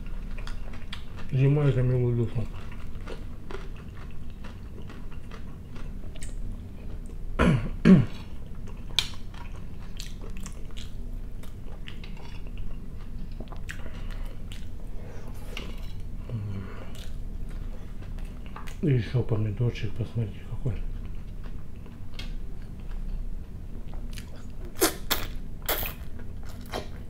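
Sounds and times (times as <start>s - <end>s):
close-up chewing: 0.0s - 1.5s, 2.3s - 7.2s, 8.1s - 18.8s.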